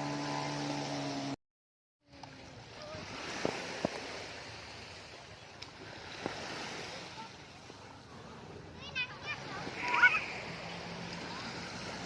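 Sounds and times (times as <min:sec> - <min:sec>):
motor drone: 0:00.0 - 0:01.4
sea waves washing ashore: 0:00.0 - 0:01.4, 0:02.1 - 0:12.0.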